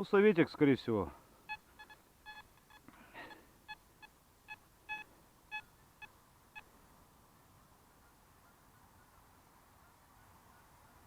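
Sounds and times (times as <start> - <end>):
metal detector beeps: 1.5 - 6.7.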